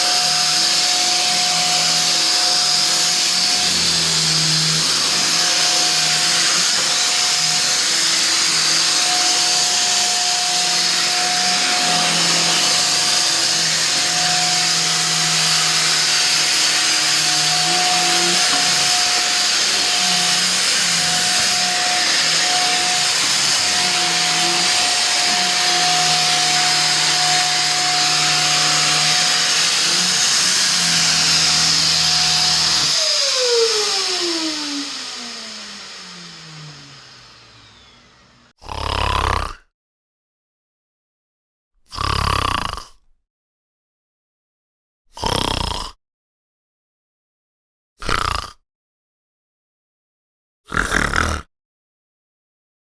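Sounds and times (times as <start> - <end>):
electric motor whining and hissing: 0.0 - 38.5
motor spinning down: 0.1 - 38.5.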